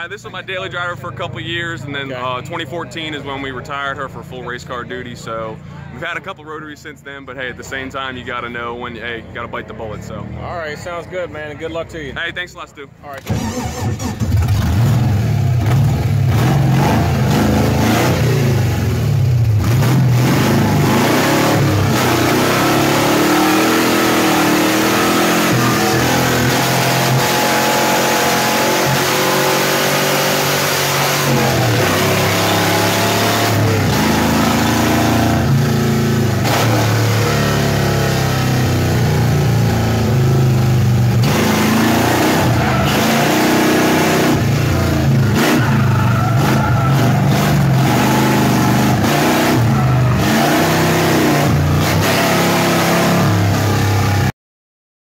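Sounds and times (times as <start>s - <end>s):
car engine revving hard: 13.2s - 54.3s.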